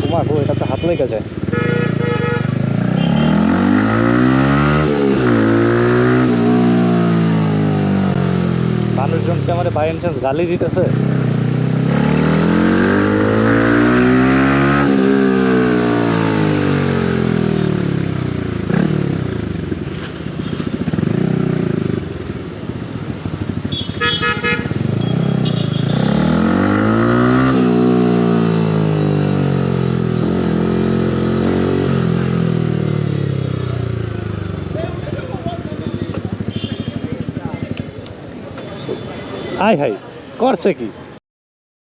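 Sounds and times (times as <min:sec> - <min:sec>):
horn beeping: 0:00.0 - 0:03.8, 0:23.6 - 0:26.8
motorcycle engine accelerating: 0:02.4 - 0:38.4.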